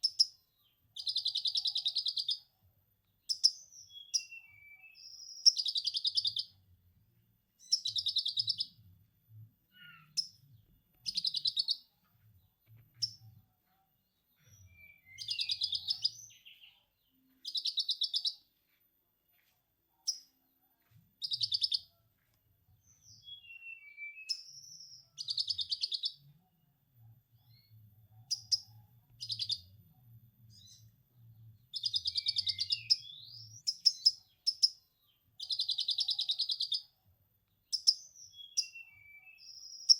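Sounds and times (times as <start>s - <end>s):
songbird chattering trill: 31.8s - 34.8s.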